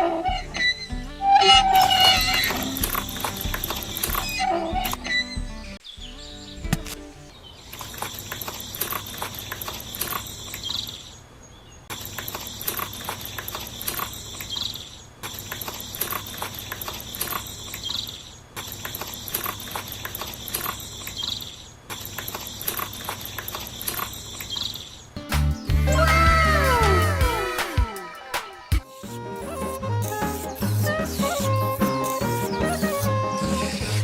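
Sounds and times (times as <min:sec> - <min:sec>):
quick clicks: 0:01.8 - 0:05.0, 0:07.7 - 0:11.0, 0:11.9 - 0:25.4.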